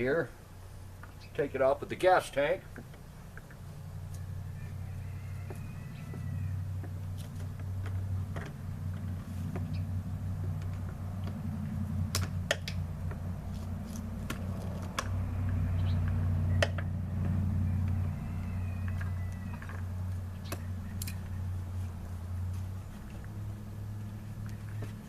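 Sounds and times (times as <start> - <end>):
steady low rumble: 6.4 - 18.2
sharp clicks and knocks: 12.1 - 13.2.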